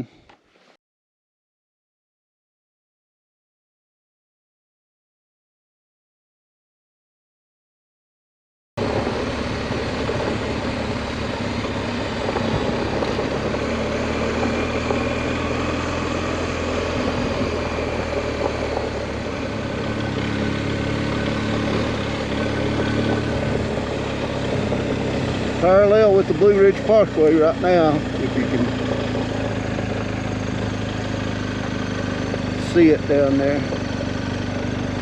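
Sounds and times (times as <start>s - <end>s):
motorcycle engine running: 8.8s - 35.0s
wind noise on microphone: 12.2s - 13.6s, 16.9s - 17.8s.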